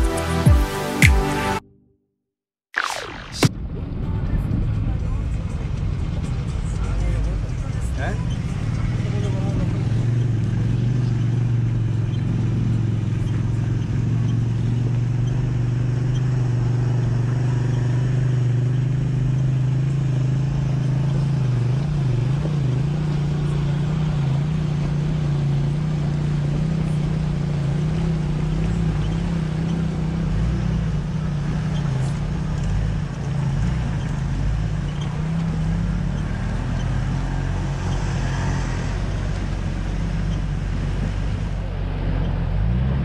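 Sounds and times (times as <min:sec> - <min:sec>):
car engine droning: 0:03.0 - 0:43.0.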